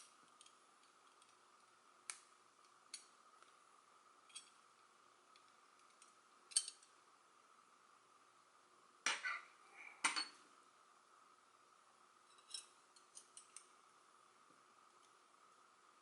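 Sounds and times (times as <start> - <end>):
metal puzzle pieces clinking: 4.3 - 4.6, 5.8 - 6.9.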